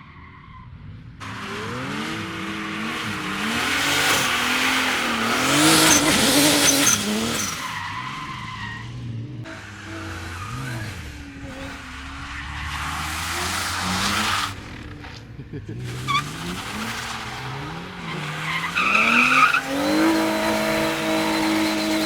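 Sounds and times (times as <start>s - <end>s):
tyres skidding: 0.1s - 22.0s
car engine revving: 0.8s - 22.0s.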